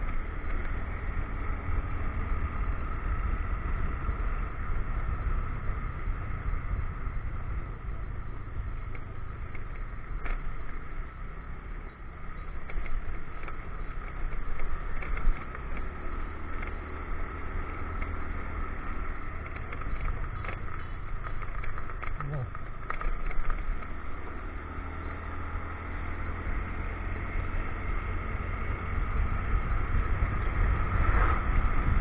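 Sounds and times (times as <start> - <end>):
knocks and rattles from road: 0.0 - 32.0
motorcycle engine running: 0.0 - 32.0
wind rush on microphone: 28.8 - 32.0.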